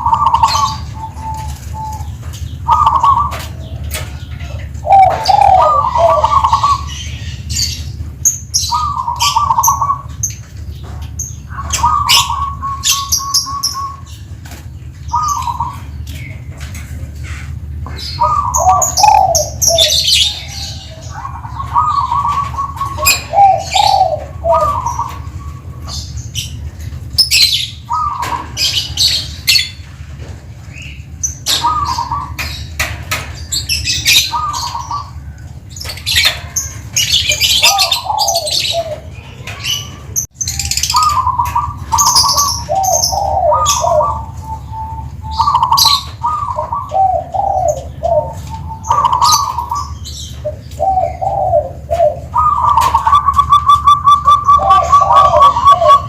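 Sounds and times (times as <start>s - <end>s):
dove cooing: 0.0s - 56.0s
small birds chirping: 0.0s - 56.0s
steady low hum: 0.0s - 56.0s.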